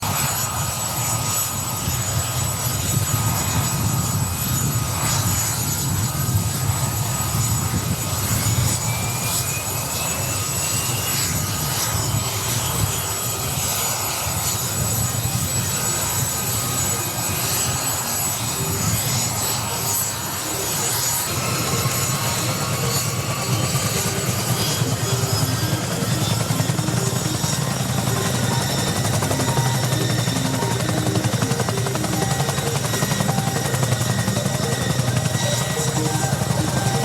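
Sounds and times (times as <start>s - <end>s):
helicopter engines droning: 0.0s - 37.0s
rising whine: 21.3s - 37.0s.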